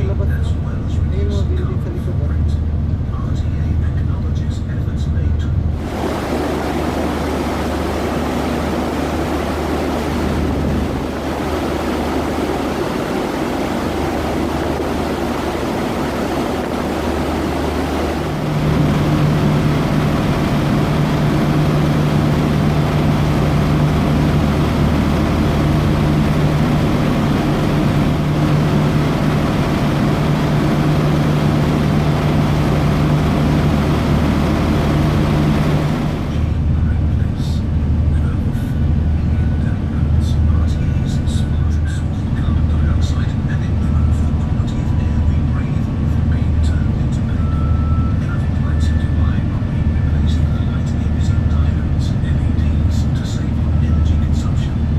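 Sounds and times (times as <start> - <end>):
ferry engines running: 0.0 - 54.9
water and wind hiss: 5.8 - 20.1.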